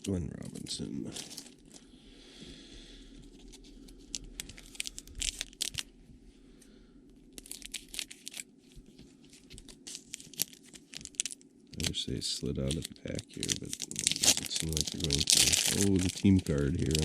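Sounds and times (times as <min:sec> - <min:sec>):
card pack wrapper tearing and crinkling: 0:00.0 - 0:01.8, 0:03.3 - 0:05.9, 0:07.3 - 0:08.5, 0:09.3 - 0:17.0.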